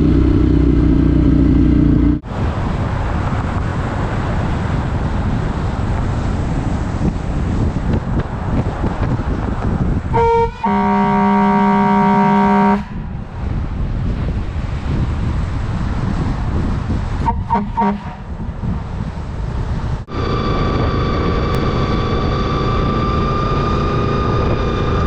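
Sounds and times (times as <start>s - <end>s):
wind and road noise: 0.0s - 25.0s
vehicle horn: 10.1s - 13.0s, 17.2s - 18.3s.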